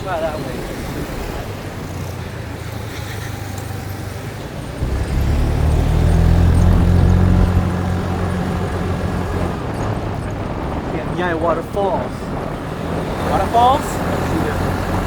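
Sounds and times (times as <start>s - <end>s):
vehicle engine running: 4.7s - 10.5s
deeper louder engine: 4.7s - 11.2s.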